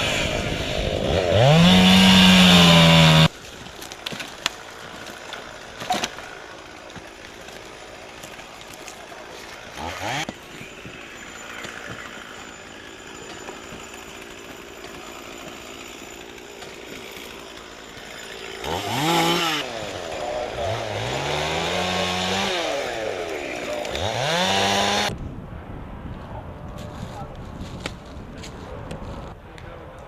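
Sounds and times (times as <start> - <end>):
chainsaw revving: 0.0 - 3.4, 4.5 - 25.1.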